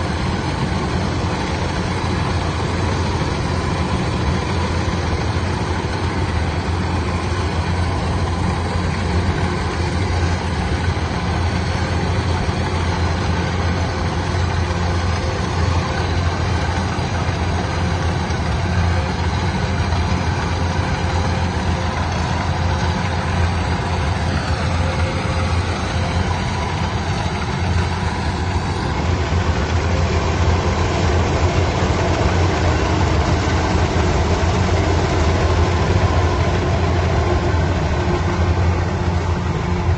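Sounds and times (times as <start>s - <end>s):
heavy machine engine humming: 0.0s - 39.9s.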